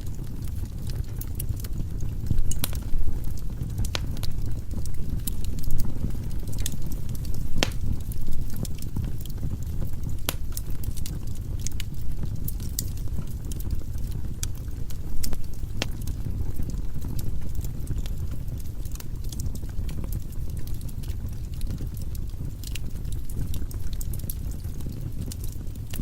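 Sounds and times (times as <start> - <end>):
fire crackles and pops: 0.0 - 26.0
low rumble of flames: 0.0 - 26.0
loud wood snaps: 7.6 - 8.0.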